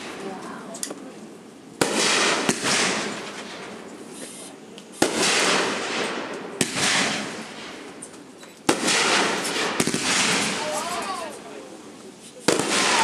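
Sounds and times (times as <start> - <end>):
fireworks bangs: 0.0 - 0.8, 1.8 - 11.7, 12.3 - 13.0.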